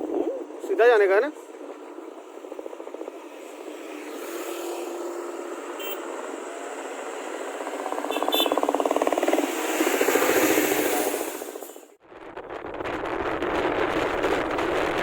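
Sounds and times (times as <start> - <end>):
motorcycle engine running: 6.0 - 10.6.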